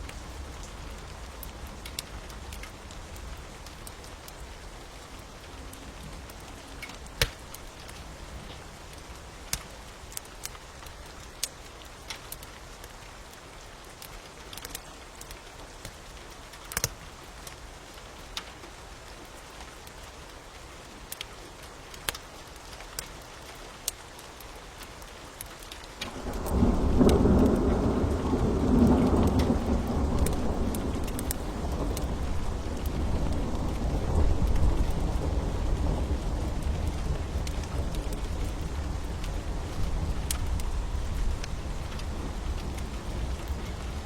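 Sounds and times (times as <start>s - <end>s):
wood fire crackling: 0.0s - 17.6s, 21.0s - 44.0s
steady rain hiss: 0.0s - 44.0s
thunder rumbling: 26.1s - 44.0s.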